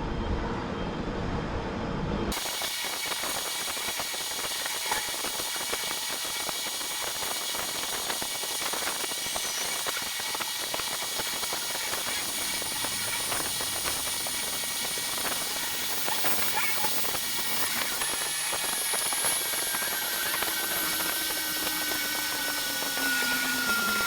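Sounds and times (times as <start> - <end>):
compressed air hissing: 5.3 - 22.3.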